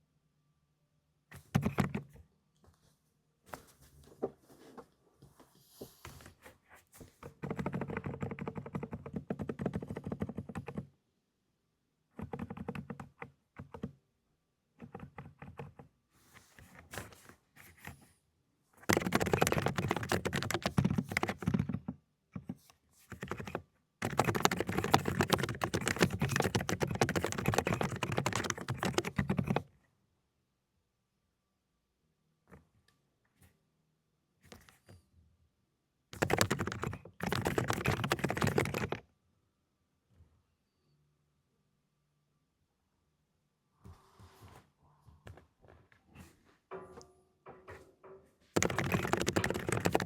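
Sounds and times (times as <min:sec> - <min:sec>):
muted keyboard typing: 0:01.3 - 0:02.2, 0:07.2 - 0:10.9, 0:12.2 - 0:14.0, 0:14.8 - 0:15.9, 0:18.8 - 0:29.7, 0:36.2 - 0:39.0, 0:48.6 - 0:50.0.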